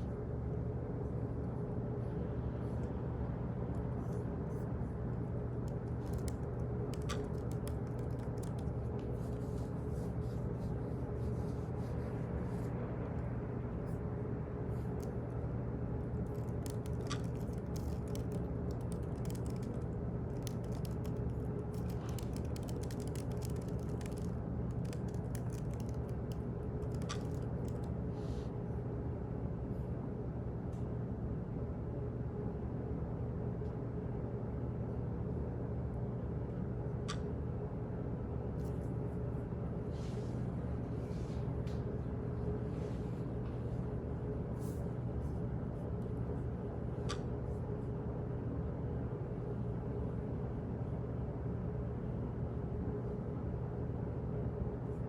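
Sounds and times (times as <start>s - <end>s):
low hum: 0.0s - 55.0s
keyboard typing clicks: 5.6s - 9.3s, 16.2s - 27.9s.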